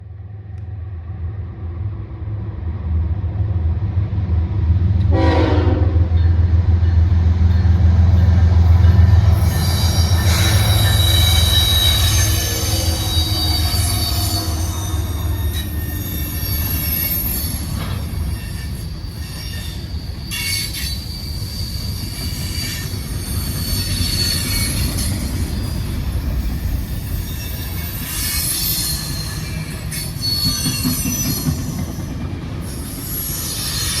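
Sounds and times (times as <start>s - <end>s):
diesel locomotive engine rumble: 0.0s - 34.0s
railcar clanks: 4.9s - 34.0s
train horn: 5.1s - 6.2s
train wheels squealing: 7.4s - 34.0s.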